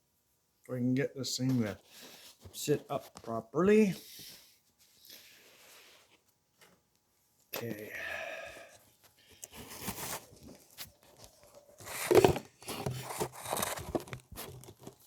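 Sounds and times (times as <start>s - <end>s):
camera handling rustling and scraping: 9.3s - 15.0s.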